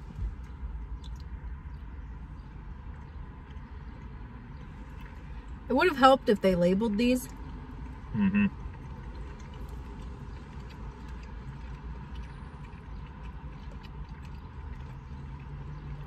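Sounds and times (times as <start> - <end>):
chewing clicks: 0.0 - 5.6, 7.2 - 16.0
car cabin hum: 0.0 - 16.0
person murmuring mm: 8.2 - 8.5.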